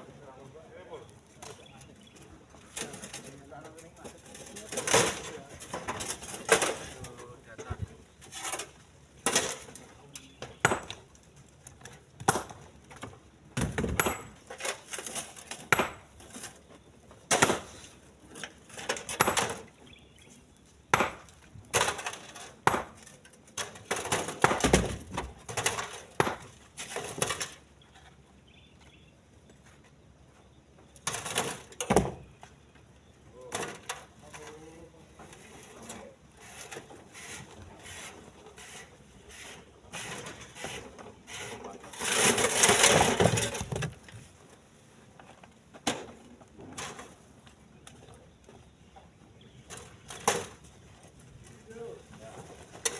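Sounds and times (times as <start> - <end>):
stones clattering into truck bed: 4.2 - 11.1, 11.8 - 16.5, 18.6 - 19.8, 20.9 - 27.7, 41.9 - 44.2.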